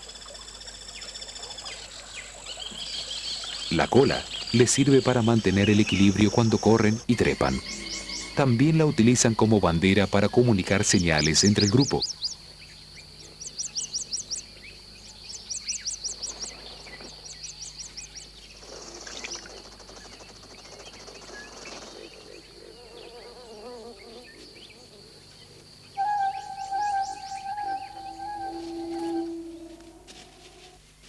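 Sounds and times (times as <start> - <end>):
high insect drone: 0.0 - 30.8
rapid chirps: 3.7 - 12.3, 26.0 - 30.1
sustained musical tone: 4.9 - 10.7, 26.0 - 30.8.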